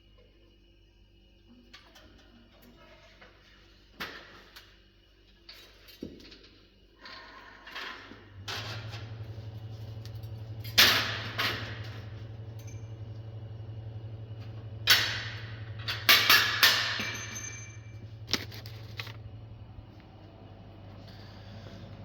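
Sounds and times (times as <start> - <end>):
steady low hum: 8.3 - 22.0.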